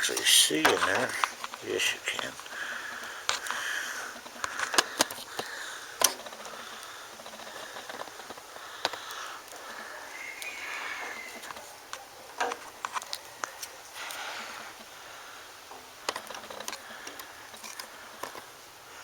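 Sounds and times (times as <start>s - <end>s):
soft breathing or sniffing: 2.5s - 11.4s, 13.5s - 15.6s.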